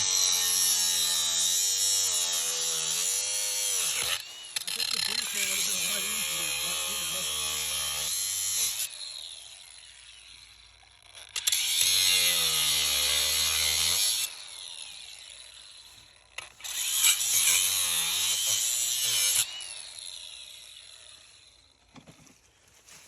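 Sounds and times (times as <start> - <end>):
power tool motor running: 0.0 - 15.8.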